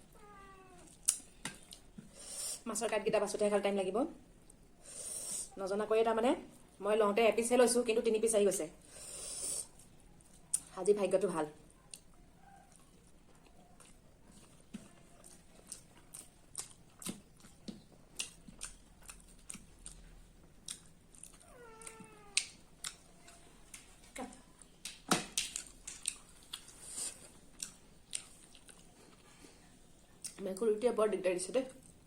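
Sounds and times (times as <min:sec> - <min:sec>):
cat meowing: 0:00.1 - 0:01.0, 0:21.4 - 0:22.6
mouth clicks and smacks eating: 0:00.8 - 0:02.1, 0:11.7 - 0:29.2.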